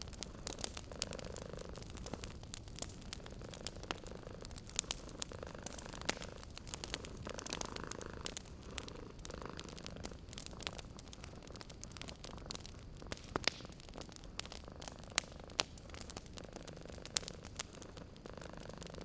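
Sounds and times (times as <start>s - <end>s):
cat purring: 0.0s - 19.0s
fire popping and snapping: 0.0s - 19.0s
wood fire crackling: 0.0s - 19.0s.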